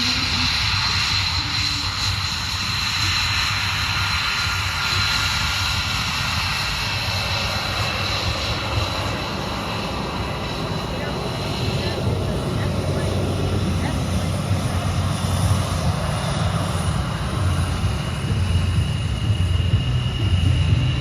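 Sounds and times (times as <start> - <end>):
airplane engines running: 0.0 - 21.0.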